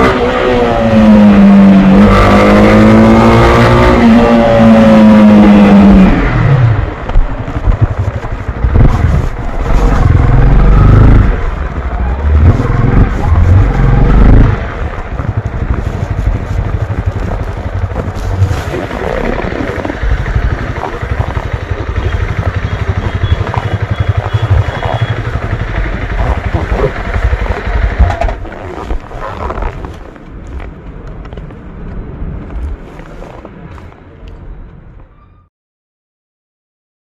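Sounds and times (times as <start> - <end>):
motorcycle engine running: 4.2 - 30.6.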